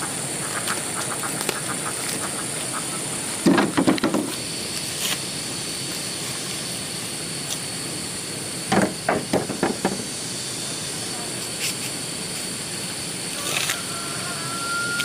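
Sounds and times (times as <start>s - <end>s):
ducks quacking: 0.0s - 3.3s
steady background hiss: 0.0s - 15.0s.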